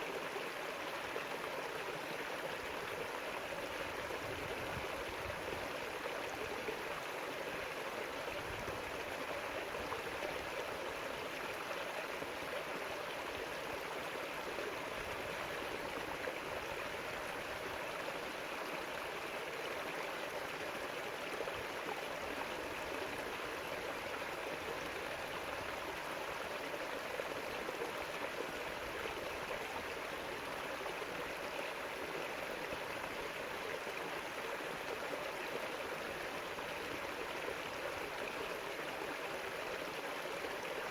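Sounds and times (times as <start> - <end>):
river water flowing over stones: 0.0 - 40.9.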